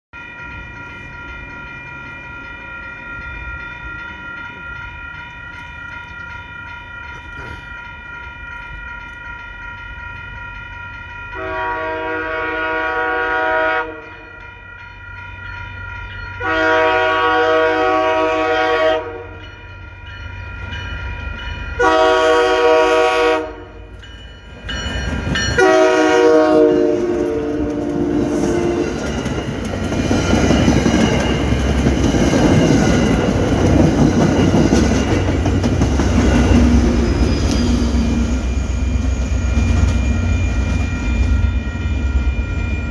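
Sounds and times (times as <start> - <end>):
crossing warning bell ringing: 0.1 - 42.9
train wheels rumbling on rails: 0.2 - 42.9
train air horn blasts: 11.4 - 14.4, 16.4 - 19.4, 21.8 - 23.8, 25.6 - 29.0.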